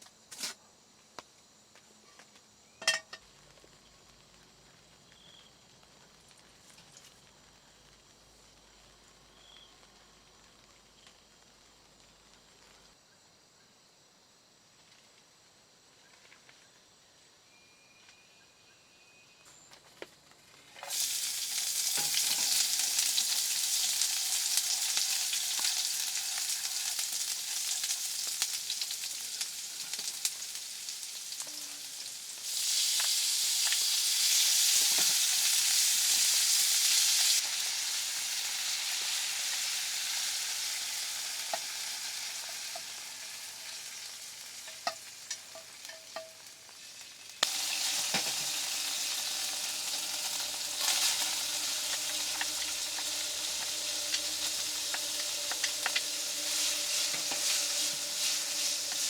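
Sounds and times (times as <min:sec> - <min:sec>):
food sizzling in a pan: 0:20.8 - 0:59.0.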